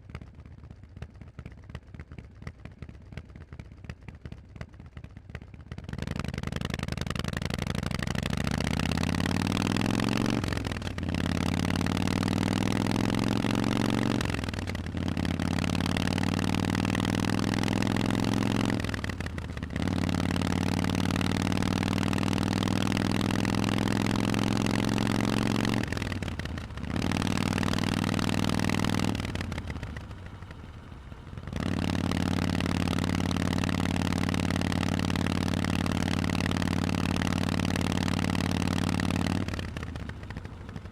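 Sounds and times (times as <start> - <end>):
motorcycle accelerating: 5.9 - 40.9.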